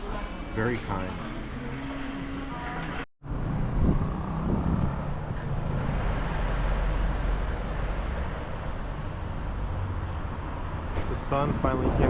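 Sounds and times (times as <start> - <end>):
street traffic: 0.0 - 12.0
vehicle passing: 1.0 - 12.0
wind rumbling on microphone: 3.3 - 8.1.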